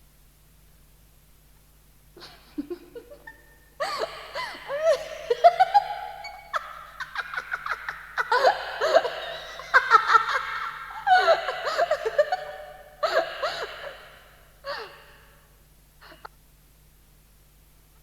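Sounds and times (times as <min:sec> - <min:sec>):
faint tape hum: 0:00.0 - 0:18.0
person gasping laughter: 0:02.2 - 0:15.2.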